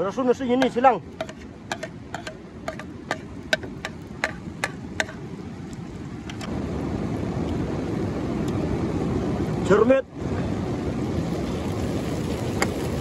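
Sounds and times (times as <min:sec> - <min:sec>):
steady rushing noise: 0:00.0 - 0:13.0
onions sizzling in oil: 0:11.2 - 0:13.0
sharp pops and crackles: 0:12.1 - 0:13.0.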